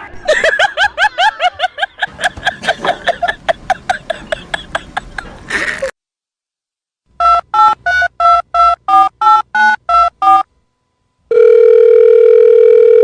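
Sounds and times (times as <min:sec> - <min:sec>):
steady telephone tone: 0:11.3 - 0:13.0.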